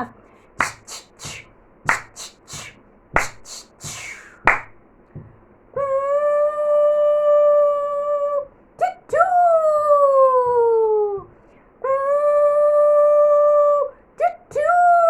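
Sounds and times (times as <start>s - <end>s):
person making breathy puffs: 0.6s - 4.6s
person making whistle-like toot: 0.6s - 4.6s.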